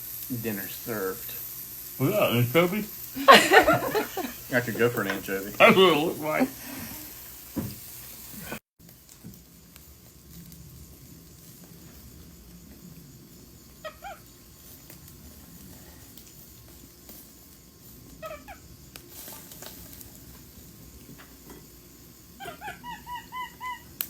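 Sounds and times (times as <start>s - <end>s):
animal squeaky calls: 13.8s - 14.3s, 18.2s - 18.6s, 22.4s - 24.0s.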